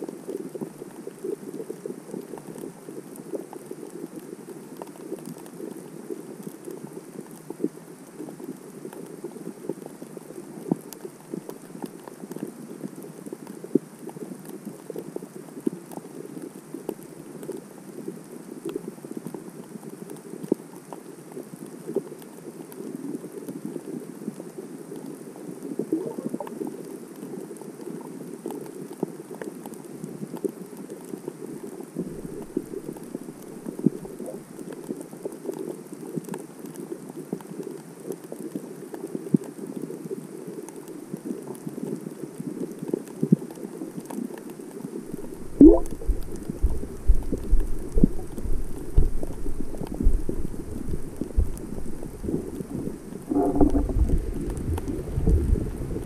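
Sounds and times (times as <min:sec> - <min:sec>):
underwater crackle of clicks: 0:25.0 - 0:26.7, 0:31.9 - 0:56.0
muffled underwater water rush: 0:25.7 - 0:26.7, 0:31.9 - 0:34.5, 0:44.8 - 0:56.0.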